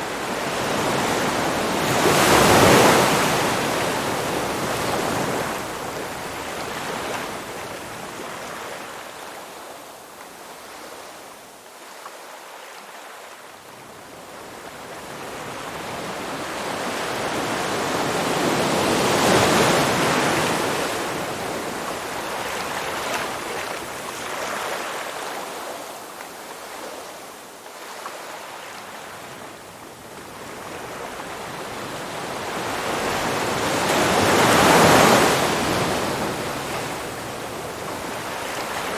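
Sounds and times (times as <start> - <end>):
ocean waves breaking: 0.0 - 8.8, 30.4 - 38.9.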